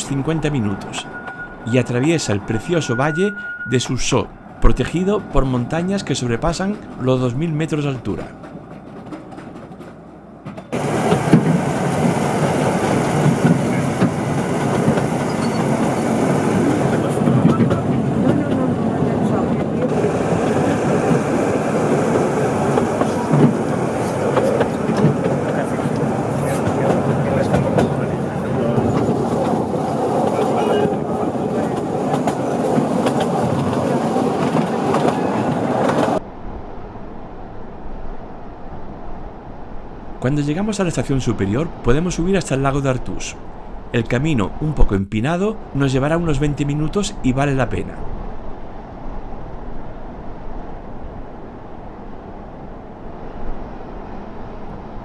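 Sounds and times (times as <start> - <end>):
steady background noise: 0.0 - 55.0
train wheels clattering on rail: 4.4 - 36.2.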